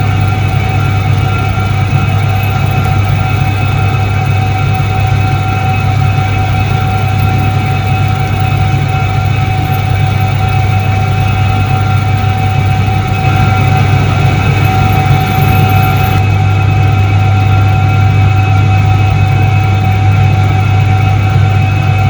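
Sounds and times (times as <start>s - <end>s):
washing machine motor humming: 0.0s - 16.6s.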